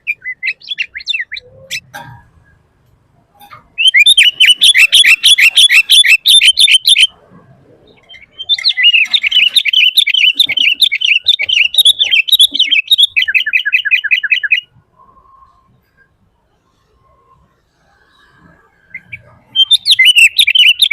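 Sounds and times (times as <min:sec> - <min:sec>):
bird singing chirping runs: 0:07.9 - 0:14.7.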